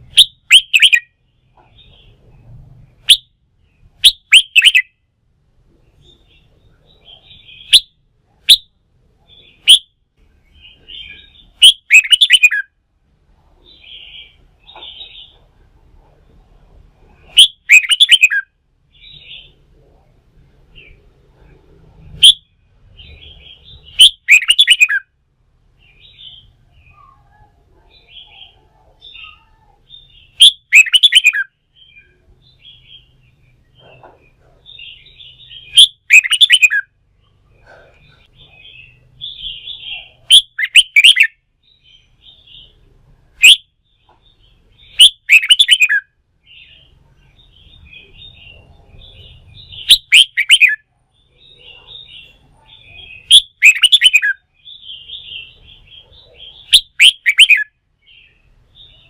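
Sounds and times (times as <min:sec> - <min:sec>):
bird chattering calls: 0:00.0 - 0:01.1, 0:04.0 - 0:04.9, 0:10.8 - 0:12.7, 0:17.3 - 0:19.6, 0:22.2 - 0:25.0, 0:28.0 - 0:33.1, 0:33.7 - 0:36.9, 0:37.6 - 0:41.3, 0:43.4 - 0:43.6, 0:44.8 - 0:46.8, 0:47.5 - 0:50.8, 0:51.4 - 0:58.2
bird song phrases: 0:00.0 - 0:05.0, 0:05.6 - 0:12.8, 0:13.4 - 0:59.0.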